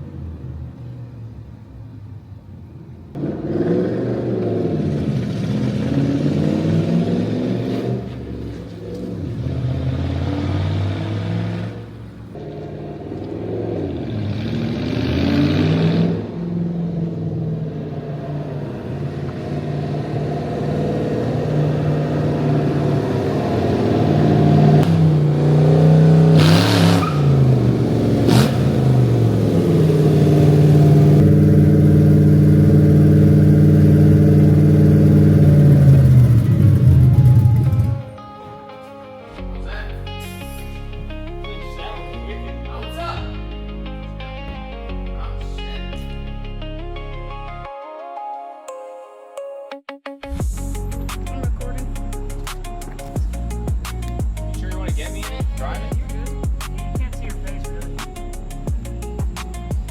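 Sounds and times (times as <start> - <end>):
car engine revving: 3.1 - 38.2, 50.3 - 59.9
sharp crack: 51.0 - 55.8, 56.5 - 59.9.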